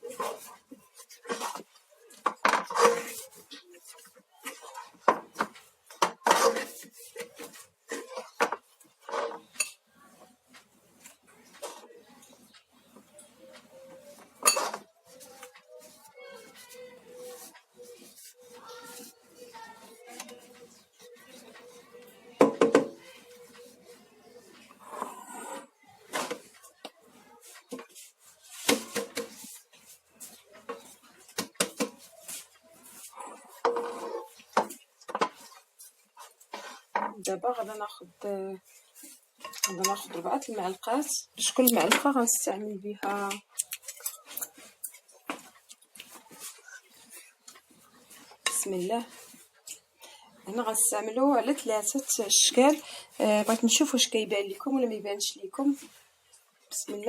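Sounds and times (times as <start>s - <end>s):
bakeware and utensils clattering: 0.0s - 9.9s, 11.0s - 37.8s, 39.0s - 42.4s
spoons and bowls clinking: 14.4s - 14.8s, 39.4s - 40.1s.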